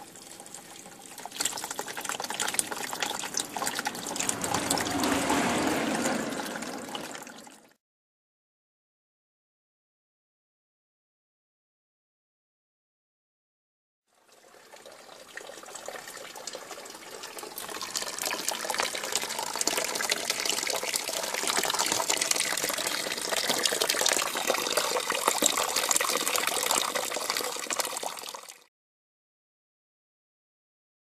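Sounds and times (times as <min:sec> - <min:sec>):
liquid gushing and splashing: 0:00.0 - 0:07.6, 0:16.5 - 0:28.7.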